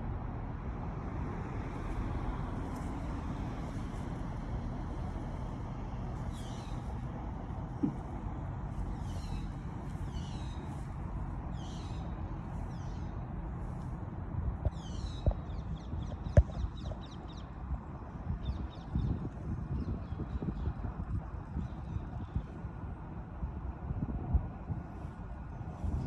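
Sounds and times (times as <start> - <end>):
low rumble: 0.0 - 26.0
small bird calling: 6.3 - 6.9, 8.9 - 10.8, 11.6 - 13.1
sharp knocks: 7.8 - 8.1.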